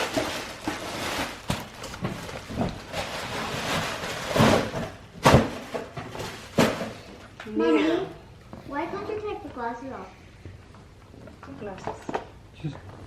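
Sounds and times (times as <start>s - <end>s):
vacuum cleaner parts rustling: 0.0s - 7.3s.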